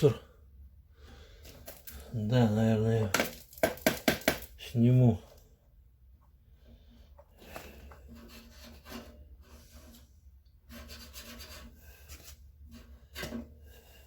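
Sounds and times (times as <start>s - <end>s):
plastic parts rubbing and scraping: 1.4s - 2.2s, 6.7s - 14.0s.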